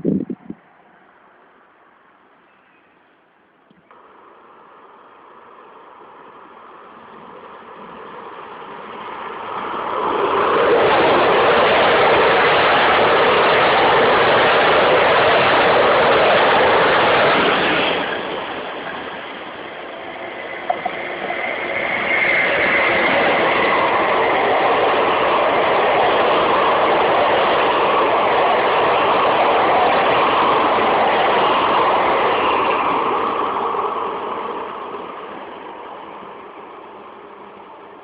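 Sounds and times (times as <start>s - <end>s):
train passing: 0.0s - 38.0s
faint high squeal: 2.4s - 3.9s.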